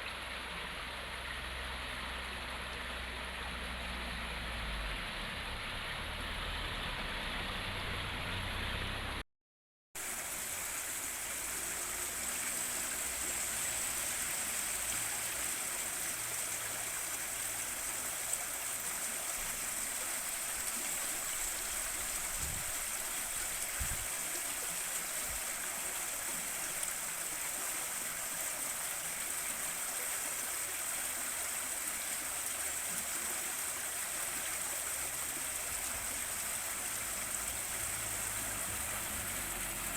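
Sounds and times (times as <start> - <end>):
river water rushing: 10.0 - 39.9.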